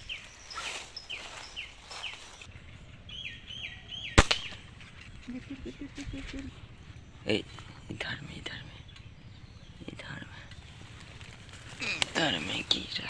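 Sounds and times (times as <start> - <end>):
small birds chirping: 0.0 - 13.0
slingshot snap: 4.2 - 4.8.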